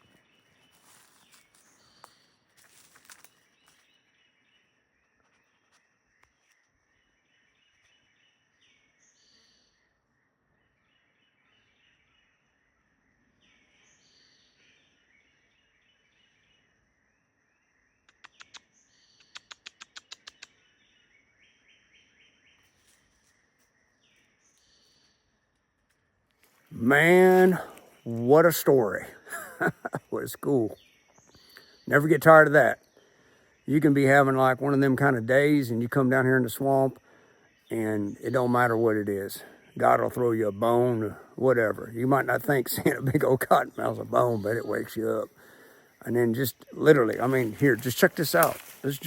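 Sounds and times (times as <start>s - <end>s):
sharp clicks: 18.1s - 20.5s
chirping bird calls: 26.7s - 49.0s.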